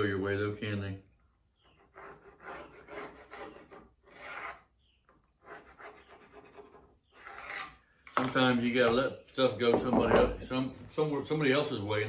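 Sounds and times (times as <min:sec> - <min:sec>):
sanding plywood by hand: 0:05.4 - 0:07.7.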